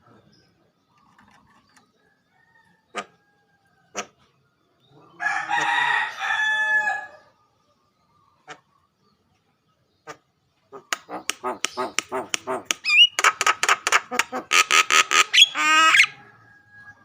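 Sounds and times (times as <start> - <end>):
starling harsh squawks: 10.8 - 16.2
rattling bird trill: 11.1 - 16.4
rising bird whistle: 12.8 - 13.2, 15.2 - 17.0.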